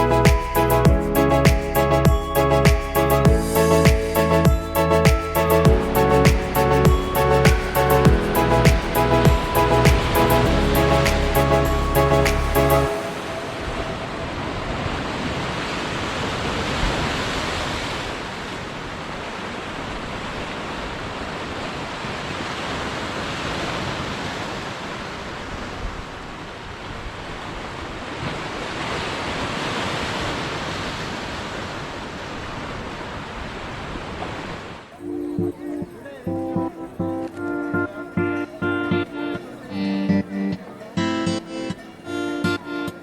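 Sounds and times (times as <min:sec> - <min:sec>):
waterfall rushing: 0:00.0 - 0:25.1.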